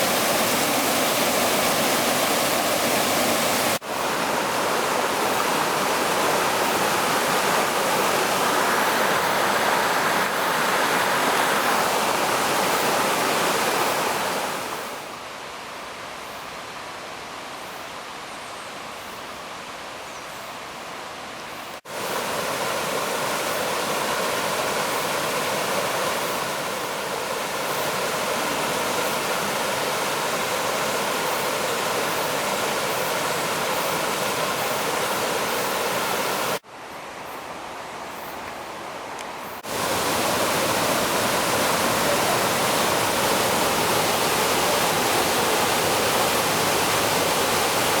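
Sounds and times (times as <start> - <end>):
waterfall rushing: 0.0 - 15.2, 21.8 - 36.6, 39.6 - 48.0.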